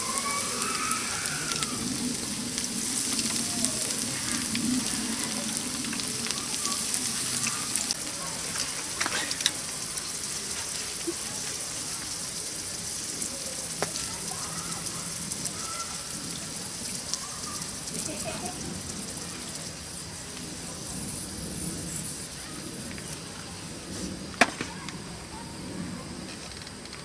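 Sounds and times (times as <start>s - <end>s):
campfire crackling: 0.0s - 27.0s
faint voices murmuring: 0.0s - 27.0s
fire popping: 0.0s - 27.0s.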